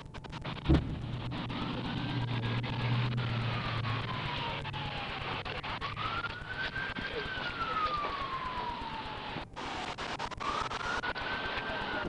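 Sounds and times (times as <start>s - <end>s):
low engine hum: 0.0s - 9.0s
rushing background noise: 0.0s - 12.0s
emergency siren wailing: 0.4s - 12.0s.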